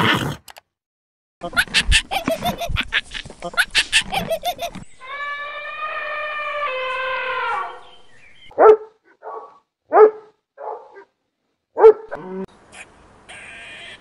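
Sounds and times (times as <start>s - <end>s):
animal long drawn-out call: 5.0s - 7.8s, 12.2s - 14.0s
short sharp barks: 8.5s - 11.1s.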